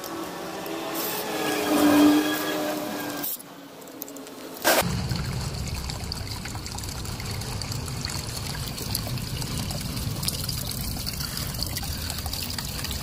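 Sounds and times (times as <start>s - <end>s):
low hum: 4.8s - 13.0s
water trickling: 4.8s - 13.0s.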